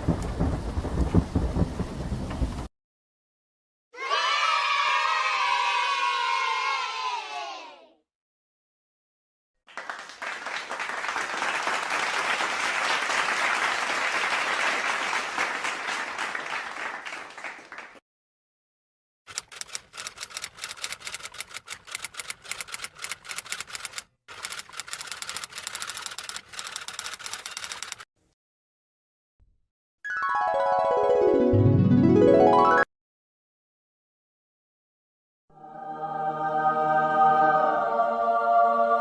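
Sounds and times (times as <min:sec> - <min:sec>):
crowd applause: 0:09.7 - 0:18.0
typewriter typing clicks: 0:19.3 - 0:28.0.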